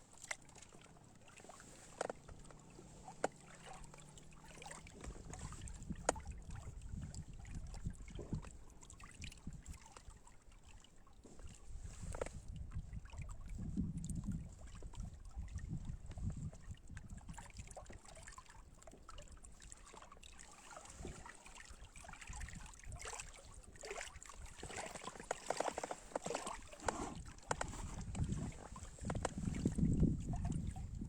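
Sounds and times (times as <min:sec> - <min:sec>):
water sounds: 0:00.0 - 0:31.0
wind rumble on microphone: 0:04.6 - 0:09.9, 0:11.4 - 0:18.0, 0:20.9 - 0:21.3, 0:22.1 - 0:25.8, 0:26.4 - 0:31.0.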